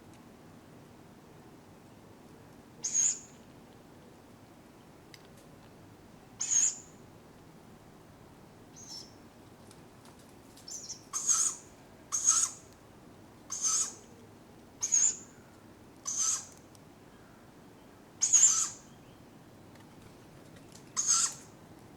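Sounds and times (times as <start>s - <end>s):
owlets screechy begging calls: 2.8s - 3.3s, 6.4s - 6.9s, 10.7s - 12.6s, 13.5s - 14.0s, 14.8s - 15.3s, 16.1s - 16.5s, 18.2s - 18.9s, 21.0s - 21.4s.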